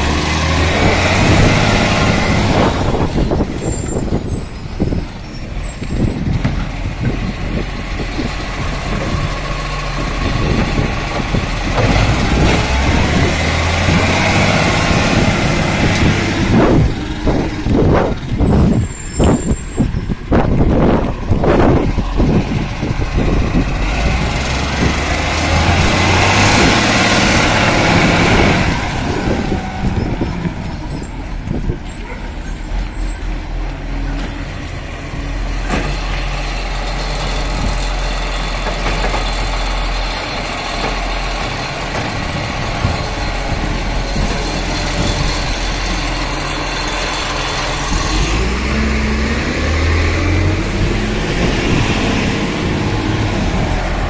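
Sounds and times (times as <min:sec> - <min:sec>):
garbage truck engine: 0:00.0 - 0:54.0
brief high squeal: 0:18.6 - 0:20.2.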